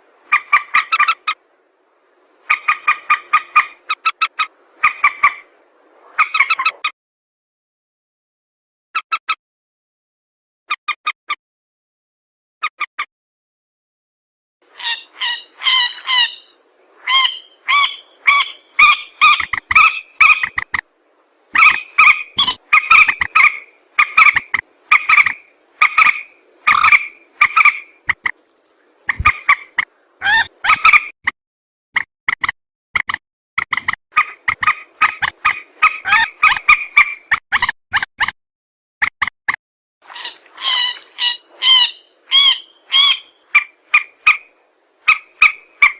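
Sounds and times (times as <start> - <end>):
harsh nasal bird calls: 14.7 - 20.8, 21.6 - 28.4, 40.1 - 44.5.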